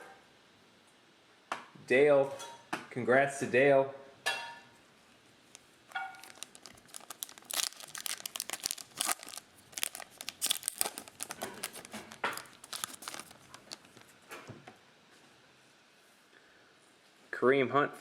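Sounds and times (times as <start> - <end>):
plastic wrapper crinkling and tearing: 5.5 - 14.3.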